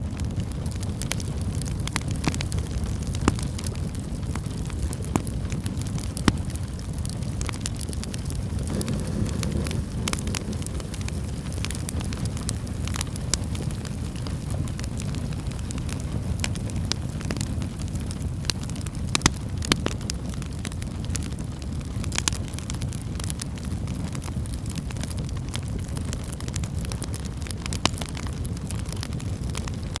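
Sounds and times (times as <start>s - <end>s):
wood fire crackling: 0.0s - 30.0s
low rushing background: 8.6s - 12.6s.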